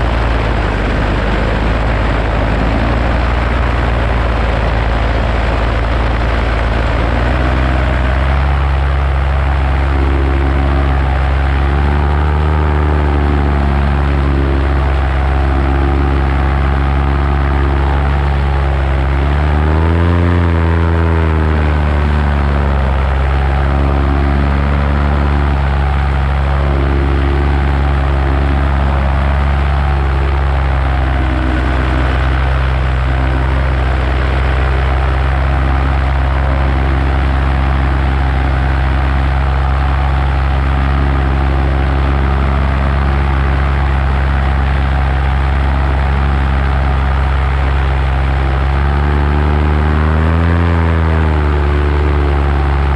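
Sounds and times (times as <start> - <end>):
paramotor engine and propeller: 0.0 - 52.9.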